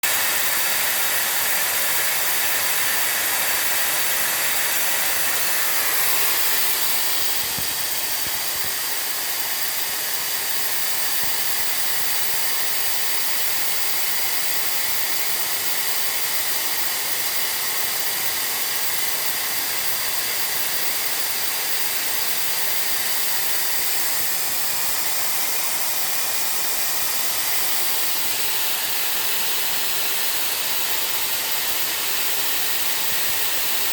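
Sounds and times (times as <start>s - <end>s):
hiss of rushing air: 0.0s - 14.0s.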